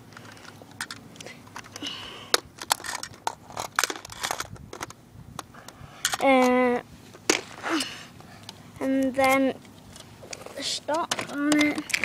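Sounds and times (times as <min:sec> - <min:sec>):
plastic toy clicking and rattling: 0:02.6 - 0:05.0, 0:10.3 - 0:12.0.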